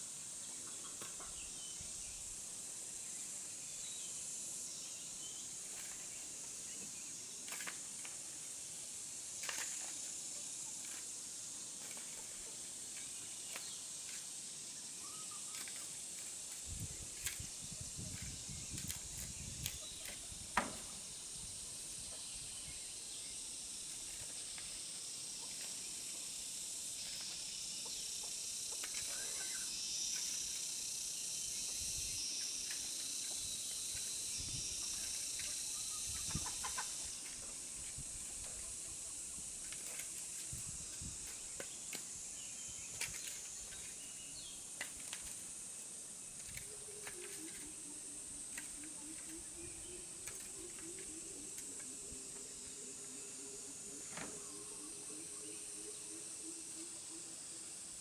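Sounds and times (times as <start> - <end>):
insects chirring: 0.0 - 58.0
chickens clucking: 36.2 - 37.1.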